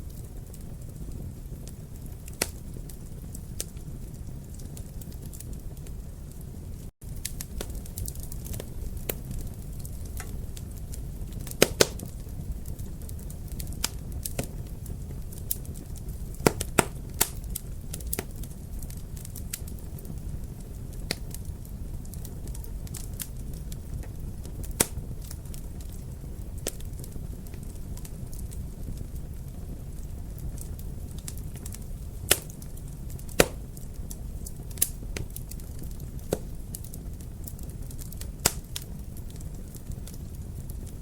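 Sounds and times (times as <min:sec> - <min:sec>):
fire popping: 0:00.0 - 0:41.0
wood fire crackling: 0:00.0 - 0:41.0.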